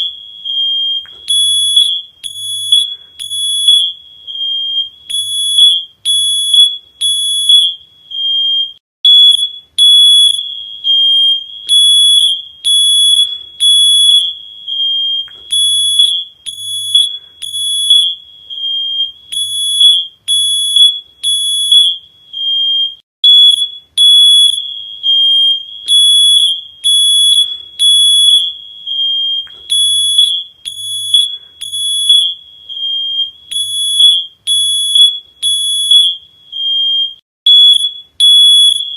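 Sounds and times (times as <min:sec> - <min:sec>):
smoke alarm beeping: 0:00.0 - 0:38.9.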